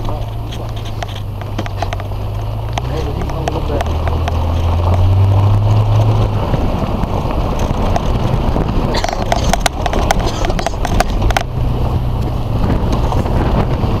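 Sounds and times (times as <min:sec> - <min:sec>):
sharp knocks and rattles: 0:00.0 - 0:05.2, 0:07.4 - 0:11.6
car engine droning: 0:00.0 - 0:14.0
vehicle rumbling over rough ground: 0:00.0 - 0:14.0.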